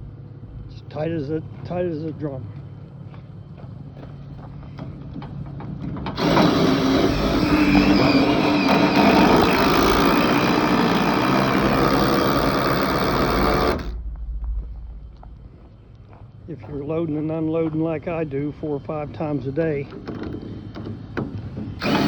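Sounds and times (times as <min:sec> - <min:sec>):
impact wrench running: 0:06.2 - 0:14.0, 0:21.8 - 0:22.0.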